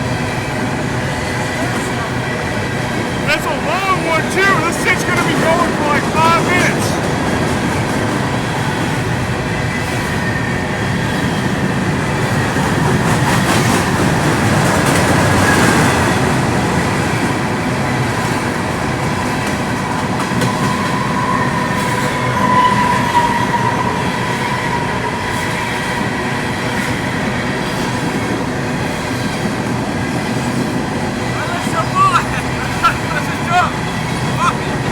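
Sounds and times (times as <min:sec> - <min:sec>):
train wheels rumbling on rails: 0:00.0 - 0:34.9
high wheel squeal: 0:20.3 - 0:26.6.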